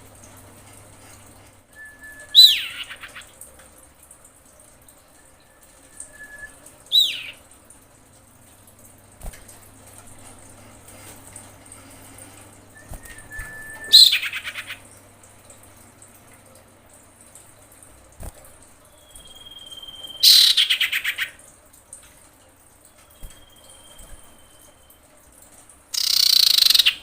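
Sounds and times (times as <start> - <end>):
bird whistling call: 1.8 - 3.2, 5.4 - 7.4, 12.8 - 14.8, 18.9 - 21.2, 23.0 - 24.9, 26.0 - 27.0
bird chattering: 2.4 - 3.3, 6.9 - 7.4, 13.9 - 14.8, 19.6 - 21.4, 26.0 - 27.0.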